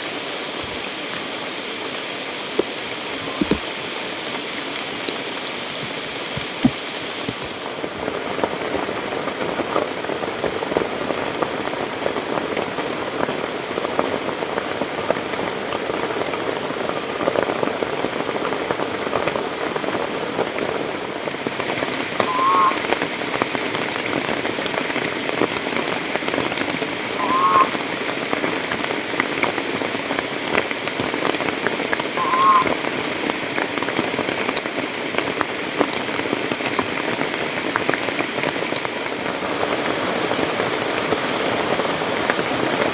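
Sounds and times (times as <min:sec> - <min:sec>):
steady rain falling: 0:00.0 - 0:42.9
short chirping calls: 0:03.2 - 0:03.7, 0:22.1 - 0:22.9, 0:27.2 - 0:27.8, 0:32.2 - 0:32.8.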